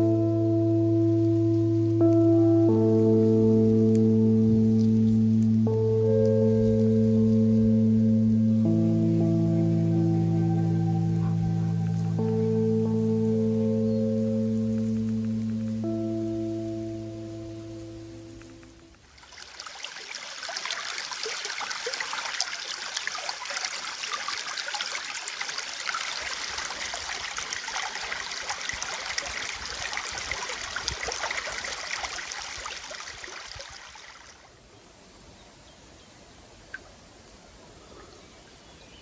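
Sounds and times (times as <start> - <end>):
quiet outdoor ambience: 0.0 - 39.0
water trickling and splashing: 17.8 - 34.6.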